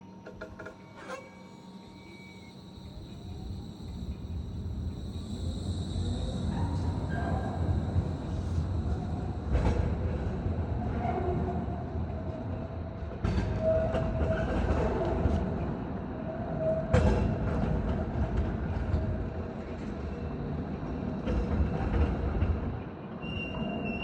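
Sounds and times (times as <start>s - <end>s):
thin high tone: 0.0s - 9.2s
faint held whine: 0.0s - 10.5s
tram rumbling on rails: 0.0s - 24.0s.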